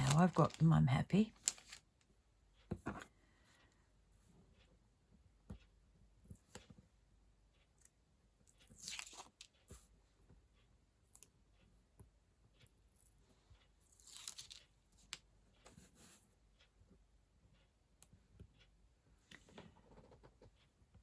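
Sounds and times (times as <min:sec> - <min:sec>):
paper and card rustling: 0:00.0 - 0:00.8, 0:01.4 - 0:01.8.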